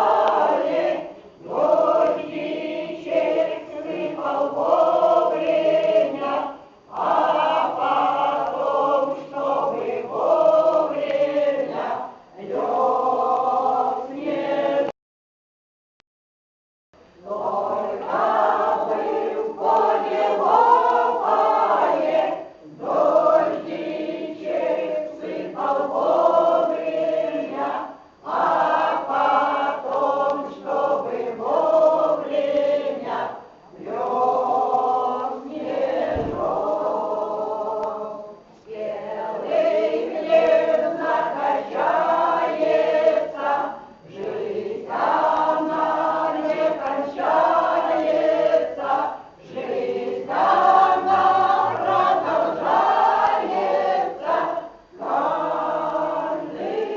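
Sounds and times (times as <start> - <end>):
choir singing: 0.0 - 14.9, 17.2 - 56.9
low thud: 36.1 - 36.5.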